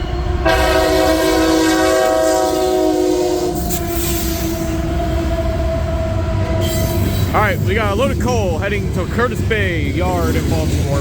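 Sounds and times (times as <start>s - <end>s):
locomotive air horn: 0.0s - 7.1s
train rumbling past: 0.0s - 11.0s.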